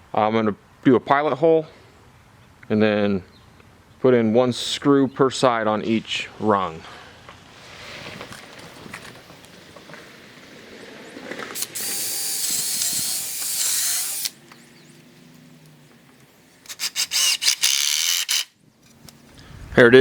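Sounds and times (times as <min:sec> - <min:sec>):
power drill whining: 0:11.5 - 0:14.5, 0:16.6 - 0:18.5.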